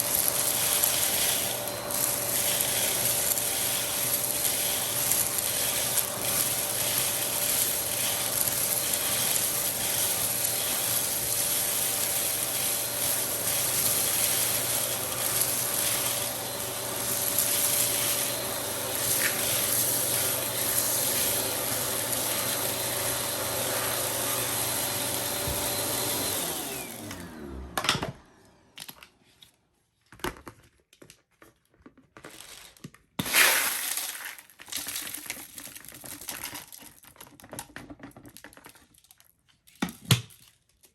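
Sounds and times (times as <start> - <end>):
vacuum cleaner running: 0.0 - 29.1.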